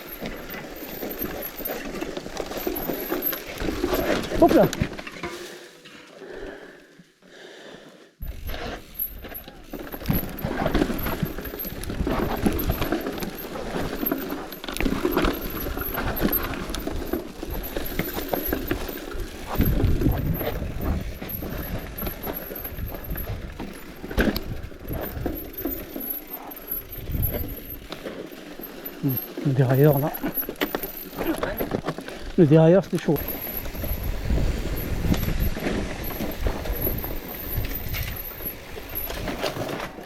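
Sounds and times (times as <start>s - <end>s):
bicycle chain and frame rattling: 0.0s - 5.7s, 8.2s - 40.0s
wind rumble on microphone: 19.4s - 25.5s, 26.8s - 27.7s, 33.2s - 39.4s.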